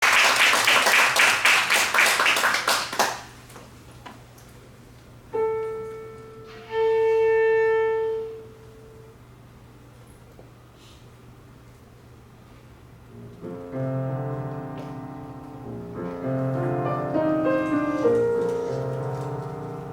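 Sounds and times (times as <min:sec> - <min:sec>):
audience applause: 0:00.0 - 0:03.4
piano note: 0:05.3 - 0:09.2, 0:13.1 - 0:19.9
clarinet holding a note: 0:05.4 - 0:09.2.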